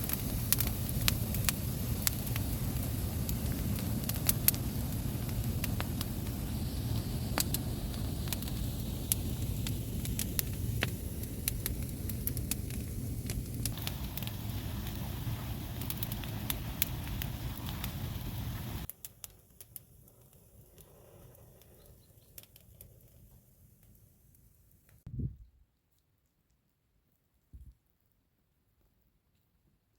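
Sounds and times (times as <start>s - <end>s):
steady low rumble: 0.0s - 18.9s, 25.1s - 25.6s
wood fire crackling and popping: 0.0s - 24.0s.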